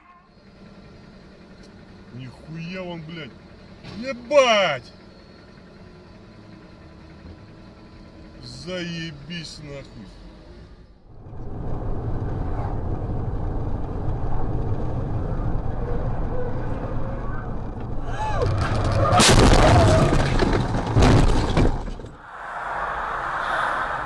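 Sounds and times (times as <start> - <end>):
vehicle running on road: 0.2 - 24.0
loud vehicle crash: 11.4 - 24.0.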